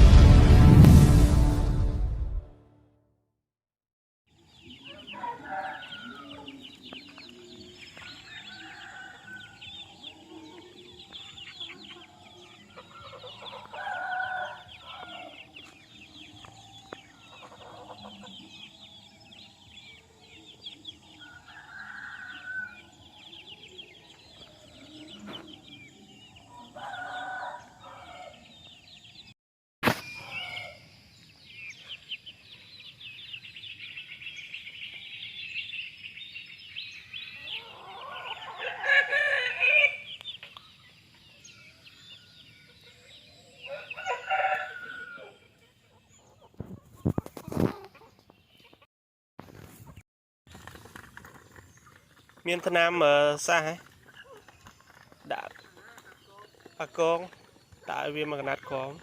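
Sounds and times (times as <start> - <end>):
adult chickens calling: 4.5 - 29.2, 30.2 - 48.9, 50.6 - 59.0
chicks peeping: 4.6 - 29.1, 37.3 - 48.9, 49.8 - 59.0.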